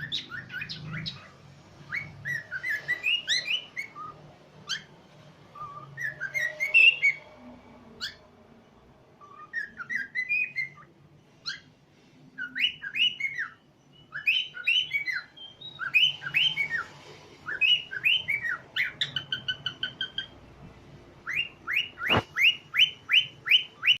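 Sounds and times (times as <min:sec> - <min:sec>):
cockatiels whistling: 0:00.0 - 0:07.3, 0:08.0 - 0:08.2, 0:09.2 - 0:11.7, 0:12.4 - 0:20.4, 0:21.2 - 0:24.0.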